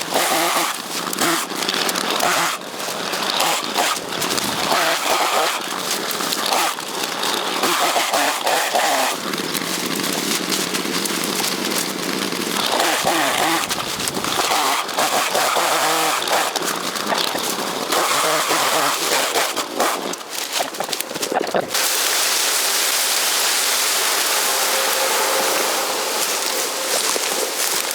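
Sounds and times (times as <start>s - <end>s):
chainsaw cutting bamboo: 0.0s - 27.9s.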